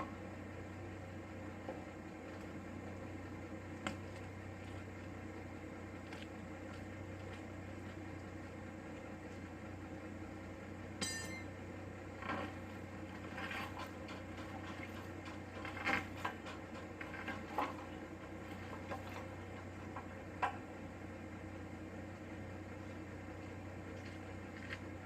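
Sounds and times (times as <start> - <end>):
low hum: 0.0 - 25.0
metallic clinks and clanks: 11.0 - 11.5.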